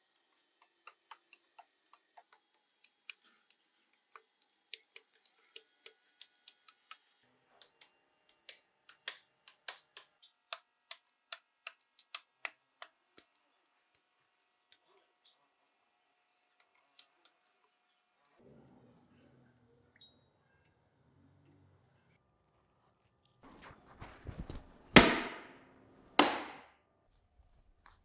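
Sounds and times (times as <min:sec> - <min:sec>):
light sharp clicks and taps: 0:00.1 - 0:13.3.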